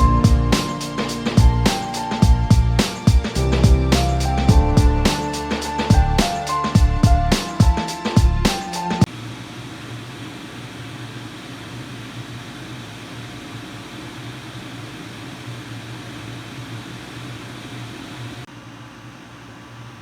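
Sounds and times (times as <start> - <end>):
air conditioner fan running: 9.0 - 20.0.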